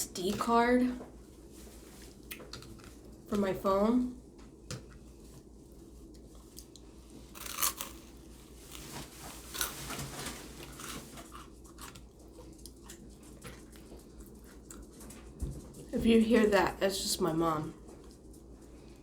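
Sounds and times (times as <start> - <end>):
person chewing: 6.0 - 8.9, 10.6 - 15.0.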